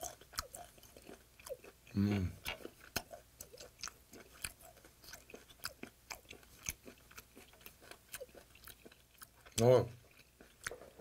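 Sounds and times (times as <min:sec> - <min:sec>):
wet chewing: 0:00.0 - 0:11.0.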